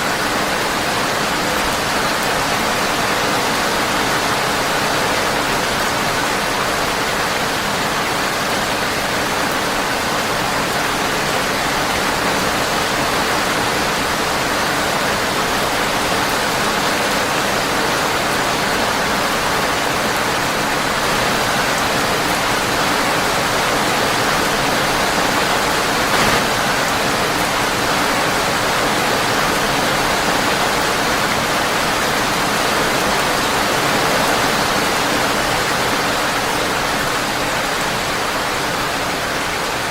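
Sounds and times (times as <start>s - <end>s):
brief loud click: 26.1s - 26.7s.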